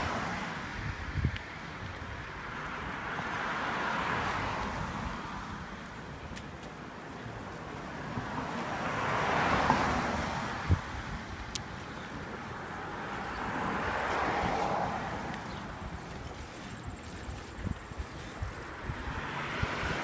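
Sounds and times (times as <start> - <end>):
wind on microphone: 0.0 - 2.3, 10.4 - 11.8, 13.2 - 20.0
road noise: 0.0 - 20.0.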